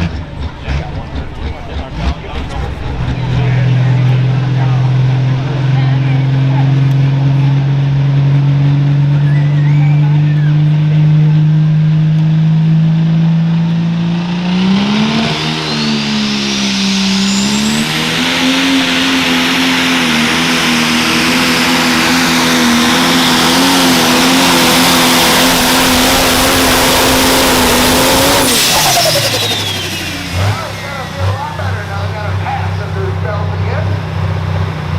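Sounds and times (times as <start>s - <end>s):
diesel tractor engine at high revs: 0.0s - 34.9s
turbo whistle: 9.1s - 11.0s, 14.9s - 19.4s, 26.8s - 30.7s.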